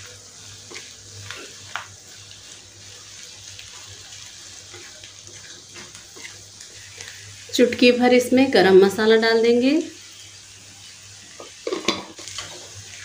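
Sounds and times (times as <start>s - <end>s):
food sizzling in a pan: 0.0s - 13.0s
spatula scraping pan: 4.6s - 7.2s.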